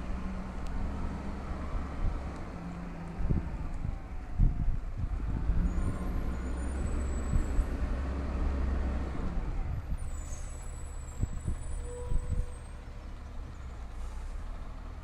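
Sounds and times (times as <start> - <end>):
garbage truck engine rumbling: 0.0 - 15.0.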